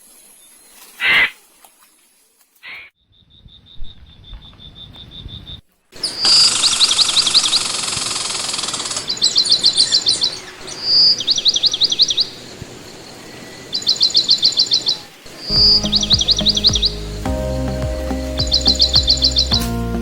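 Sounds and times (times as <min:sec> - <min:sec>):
steady insect hiss: 0:00.0 - 0:02.8, 0:06.0 - 0:17.6
harsh bird calls: 0:02.6 - 0:19.6
high bird chirps: 0:13.8 - 0:19.7
high bird pips: 0:15.4 - 0:19.7.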